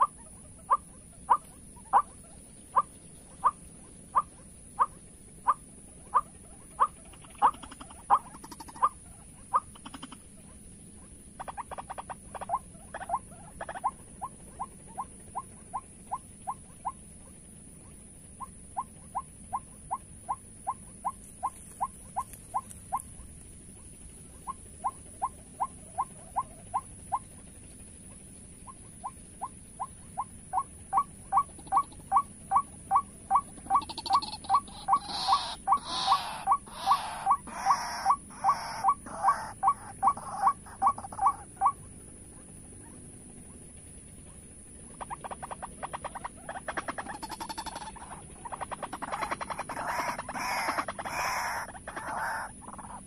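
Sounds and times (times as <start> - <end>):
waterhen calling: 0.0 - 17.0, 28.7 - 41.8, 45.0 - 53.0.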